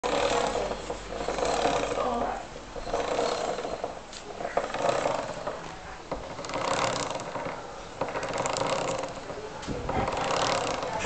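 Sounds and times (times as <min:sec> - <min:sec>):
chain clicking rattle: 0:06.2 - 0:11.0.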